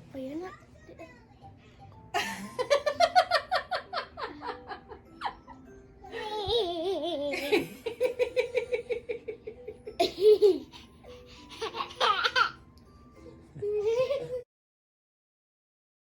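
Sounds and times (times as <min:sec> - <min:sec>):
music playing: 0:00.0 - 0:14.4
young child laughing: 0:06.1 - 0:07.9, 0:10.0 - 0:10.9, 0:11.5 - 0:12.6.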